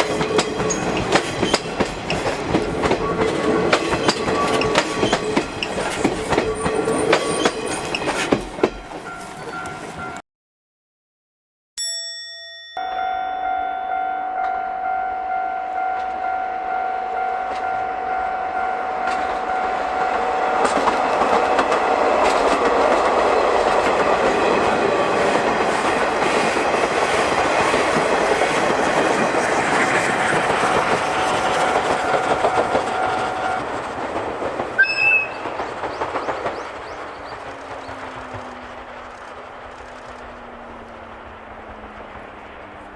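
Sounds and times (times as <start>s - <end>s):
train rumble and wheel clatter: 0.0s - 10.2s, 13.9s - 42.9s
crossing warning bell ringing: 8.6s - 10.2s, 11.8s - 22.0s, 30.1s - 33.7s
train whistle blast: 31.1s - 33.6s, 34.8s - 35.5s.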